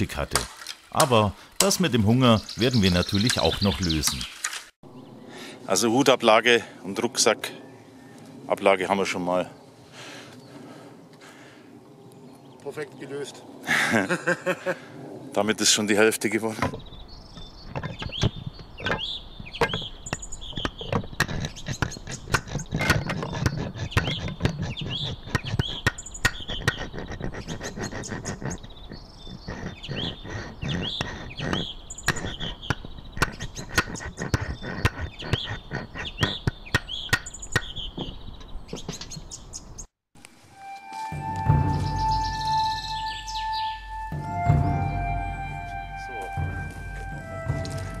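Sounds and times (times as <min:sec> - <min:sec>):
birds chirping: 0:00.0 - 0:39.9, 0:41.2 - 0:48.0
sharp clicks and knocks: 0:16.6 - 0:39.2.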